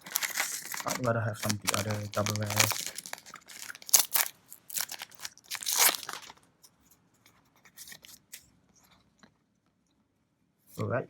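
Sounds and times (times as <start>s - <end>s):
cards and foil wrapper rustling: 0.0s - 6.4s, 7.6s - 8.4s.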